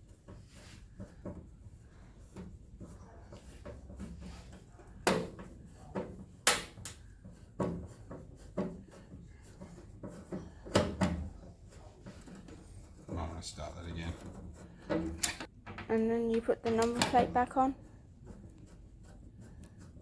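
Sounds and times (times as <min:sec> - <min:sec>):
hand tools and bolts knocking: 0:14.0 - 0:17.4.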